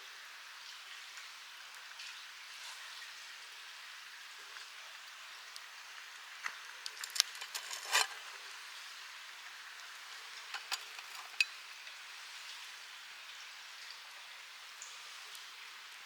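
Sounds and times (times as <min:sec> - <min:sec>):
rain patter: 0:00.0 - 0:16.0
brief scrape: 0:07.1 - 0:08.2
light clicks and knocks: 0:10.5 - 0:11.5.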